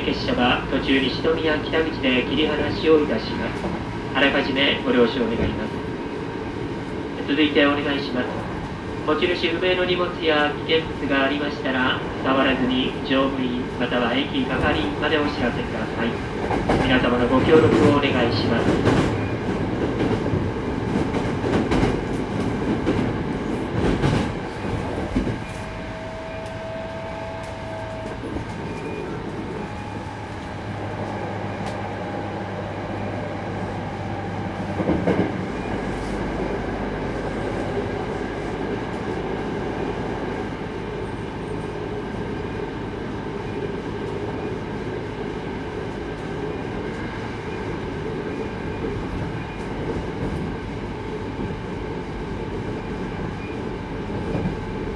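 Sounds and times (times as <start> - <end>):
train wheels rumbling on rail: 0.0 - 54.9
train clatter: 5.2 - 5.8, 14.1 - 32.3, 34.5 - 36.2
electric train whine: 21.7 - 54.9.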